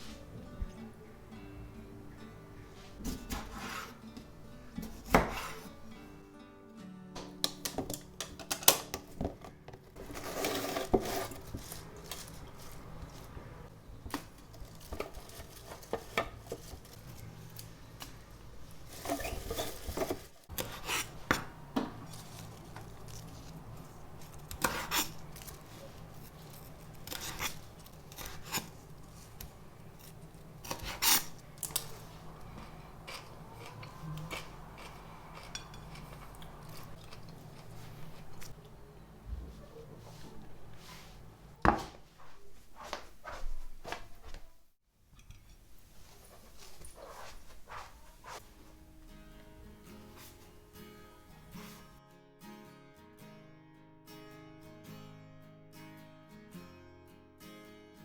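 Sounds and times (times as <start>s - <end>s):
dishes and cutlery clinking: 32.6s - 38.6s.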